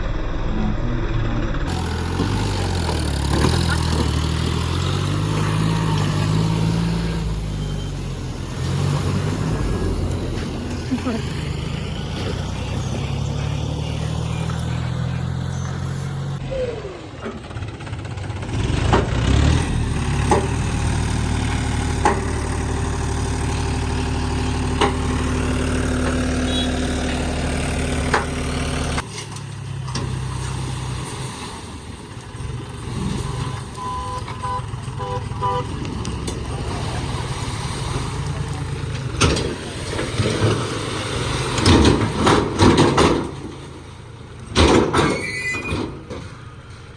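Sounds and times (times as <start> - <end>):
diesel machinery engines: 0.0 - 46.9
short beeps: 33.8 - 34.6.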